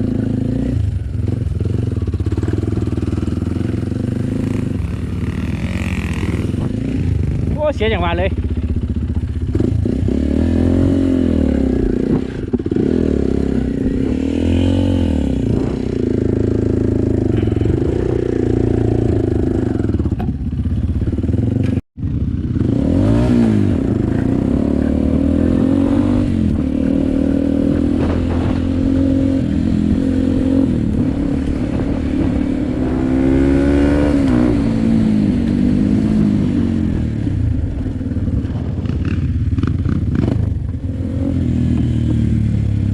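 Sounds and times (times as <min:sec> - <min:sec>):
dirt bike engine revving: 0:00.0 - 0:37.7, 0:38.4 - 0:42.9.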